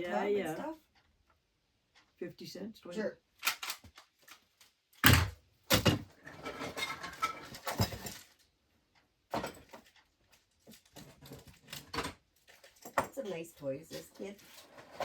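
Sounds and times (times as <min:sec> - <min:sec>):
household items clattering: 0:05.0 - 0:08.4, 0:09.3 - 0:10.0, 0:10.6 - 0:15.0.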